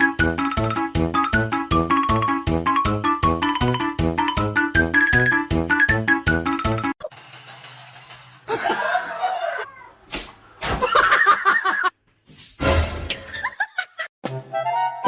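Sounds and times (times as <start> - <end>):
people laughing: 8.5 - 9.7, 10.8 - 11.9.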